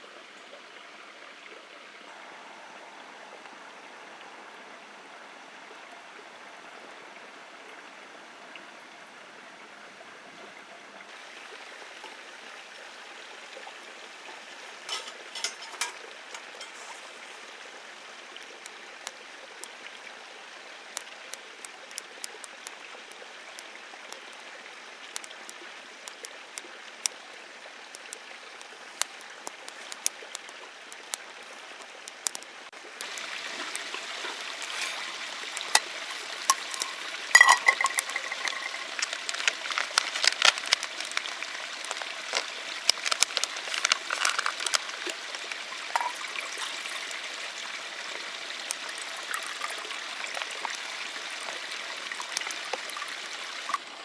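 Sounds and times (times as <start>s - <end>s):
campfire crackling and popping: 14.6s - 17.6s, 18.3s - 19.8s, 20.8s - 53.8s.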